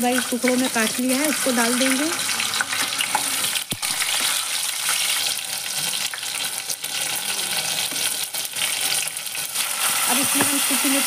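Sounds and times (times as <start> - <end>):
garlic sizzling in hot oil: 0.0 - 11.0
spoon knocking on pan: 10.2 - 10.6.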